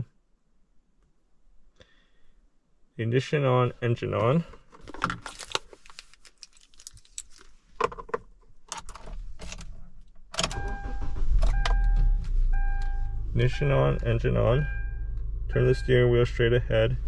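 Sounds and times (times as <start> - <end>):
car keys jingling in ignition: 5.1 - 7.5, 8.7 - 15.0
car engine cranking and idling: 8.8 - 17.0
electronic chime tone: 12.6 - 16.4.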